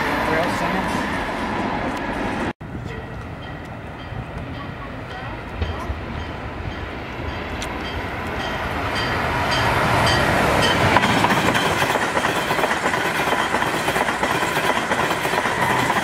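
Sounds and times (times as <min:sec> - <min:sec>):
high-speed train passing: 0:00.0 - 0:16.0
wheels clicking on rails: 0:07.5 - 0:16.0.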